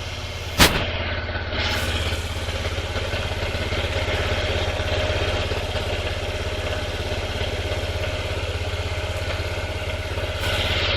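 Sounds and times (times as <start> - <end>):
scooter engine idling: 0.0 - 10.9.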